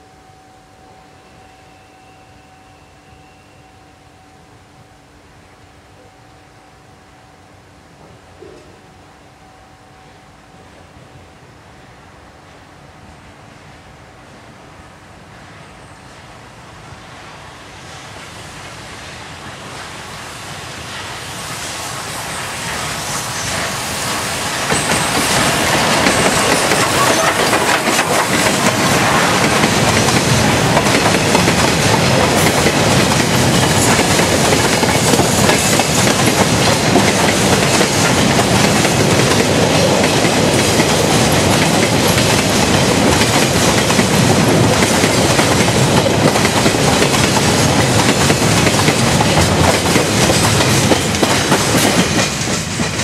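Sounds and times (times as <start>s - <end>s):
freight train rolling past: 0.0s - 53.0s.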